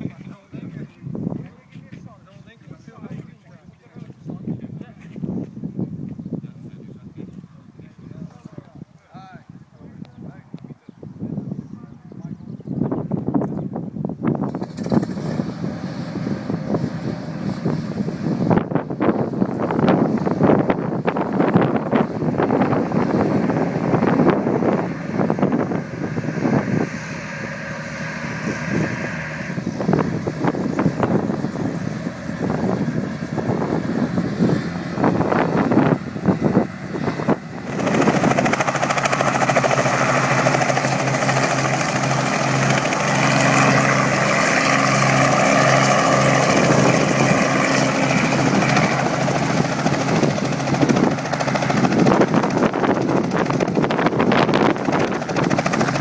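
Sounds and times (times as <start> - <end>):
helicopter rotor and engine: 0.0 - 56.0
wind on microphone: 0.0 - 56.0.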